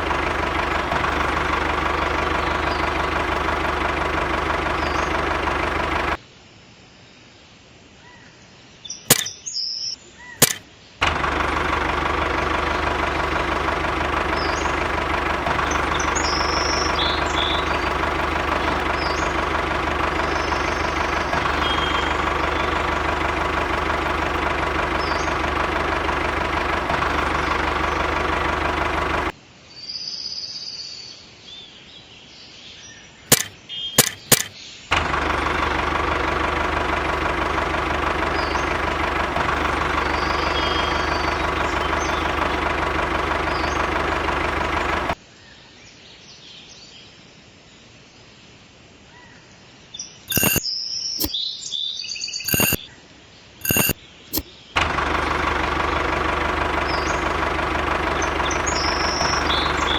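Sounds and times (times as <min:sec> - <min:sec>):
sharp clicks: 0:00.0 - 0:06.2, 0:09.1 - 0:09.3, 0:10.4 - 0:29.3, 0:33.3 - 0:45.2, 0:50.3 - 0:50.6, 0:52.5 - 0:52.8, 0:53.6 - 0:59.9
small engine running: 0:00.0 - 0:06.2, 0:10.4 - 0:29.4, 0:33.3 - 0:45.2, 0:50.3 - 0:50.6, 0:52.5 - 0:52.8, 0:53.6 - 0:59.9.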